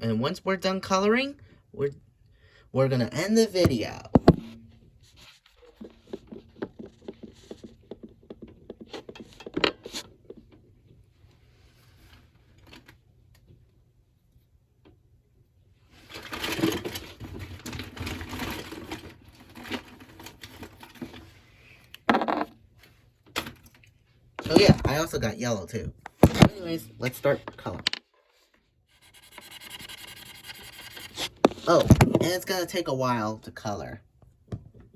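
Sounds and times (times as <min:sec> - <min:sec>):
rummaging and rattling: 0:16.0 - 0:21.4.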